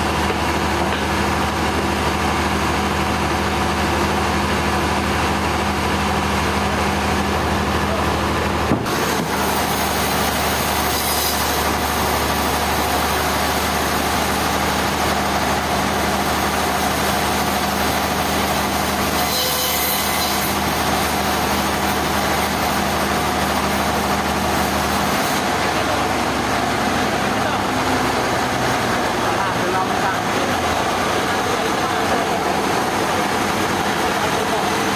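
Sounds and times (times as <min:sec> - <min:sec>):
heavy machinery engine humming: 0:00.0 - 0:19.2, 0:20.5 - 0:34.9.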